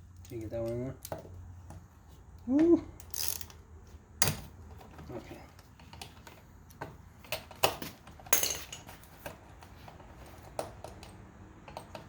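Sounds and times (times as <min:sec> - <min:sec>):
hand tools and parts clinking: 0:04.2 - 0:12.0.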